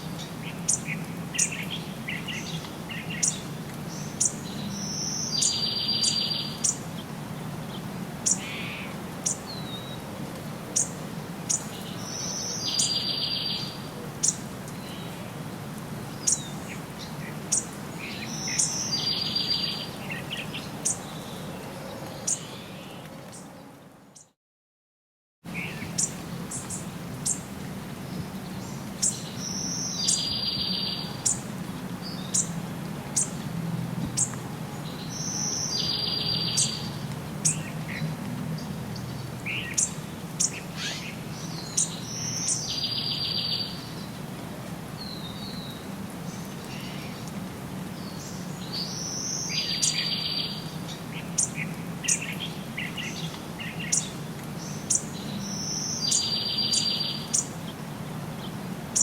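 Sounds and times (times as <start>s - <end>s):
songbirds chirping and singing: 0.0s - 10.0s, 10.8s - 15.2s, 16.1s - 24.3s, 25.5s - 27.5s, 28.1s - 33.5s, 34.1s - 44.2s, 45.0s - 59.0s.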